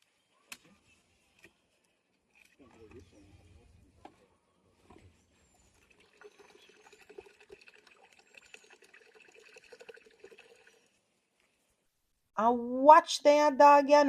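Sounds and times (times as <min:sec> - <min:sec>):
coconut water trickling: 0:05.3 - 0:11.3.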